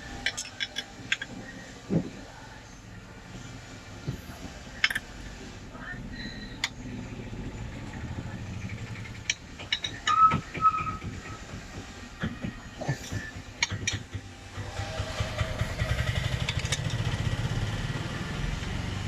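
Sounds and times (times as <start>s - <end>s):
low steady rumble: 0.0s - 19.0s
sharp knocks and clicks: 8.9s - 14.3s.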